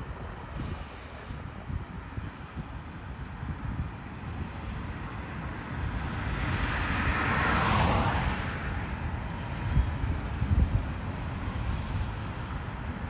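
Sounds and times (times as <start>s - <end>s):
road vehicle passing by: 5.2s - 13.0s.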